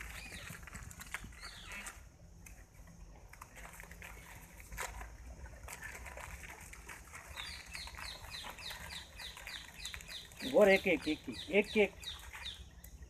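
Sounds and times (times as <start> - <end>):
bird chirping: 0.0 - 2.0, 7.3 - 13.0.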